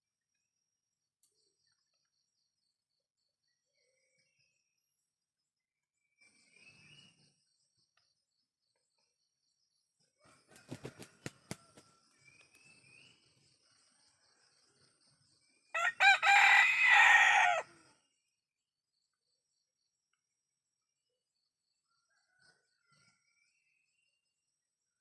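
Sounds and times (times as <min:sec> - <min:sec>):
rooster crowing: 0:10.2 - 0:11.8, 0:15.7 - 0:17.9.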